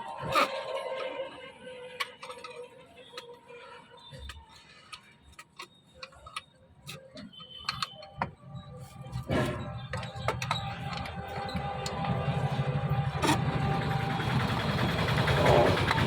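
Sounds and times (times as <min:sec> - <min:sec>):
metal parts clicking and tapping: 0:02.0 - 0:03.4, 0:04.2 - 0:08.4, 0:09.1 - 0:12.6.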